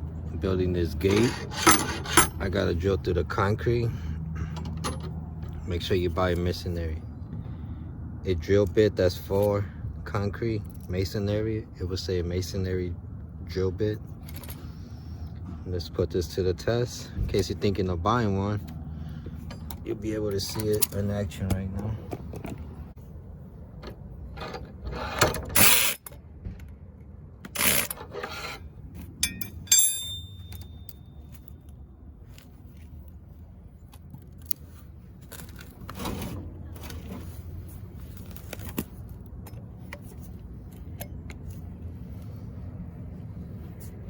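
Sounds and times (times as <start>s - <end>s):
low steady rumble: 0.0s - 44.0s
tools knocking and scraping: 1.0s - 2.5s, 27.4s - 31.4s.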